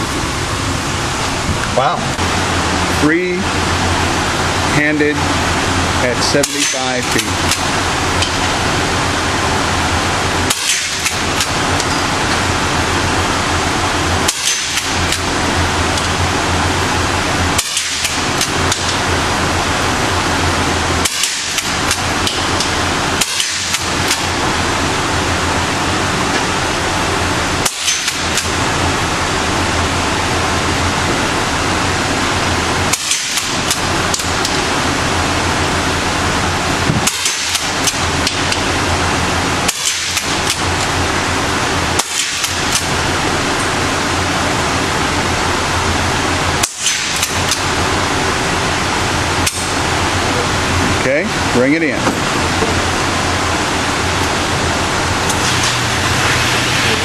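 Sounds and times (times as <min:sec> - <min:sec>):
steady loud hiss: 0:00.0 - 0:57.0
gunshots: 0:17.6 - 0:18.2, 0:21.0 - 0:21.7, 0:39.7 - 0:40.4.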